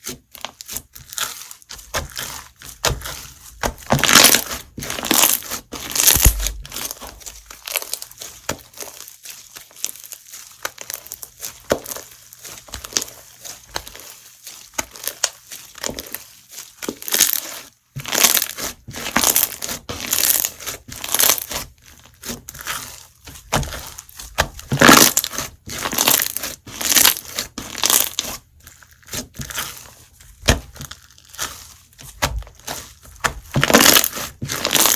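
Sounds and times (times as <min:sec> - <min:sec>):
slime crunching and crackling: 0:00.0 - 0:34.9.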